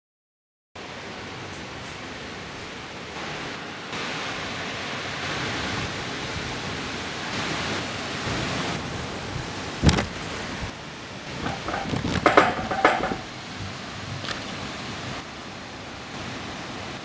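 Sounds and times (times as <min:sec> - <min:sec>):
steady rushing noise: 0:00.8 - 0:17.0
sharp knock: 0:11.4 - 0:13.3.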